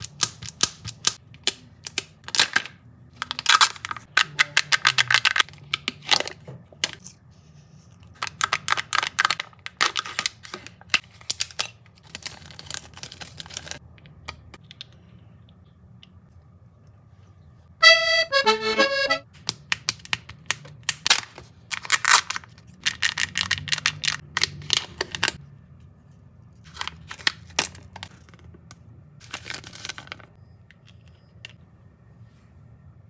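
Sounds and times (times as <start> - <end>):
foil wrapper crinkling: 8.2 - 13.8.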